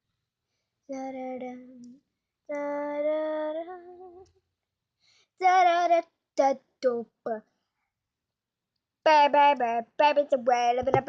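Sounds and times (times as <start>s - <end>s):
girl singing unaccompanied: 0.9s - 4.4s, 5.3s - 7.4s, 9.1s - 11.0s.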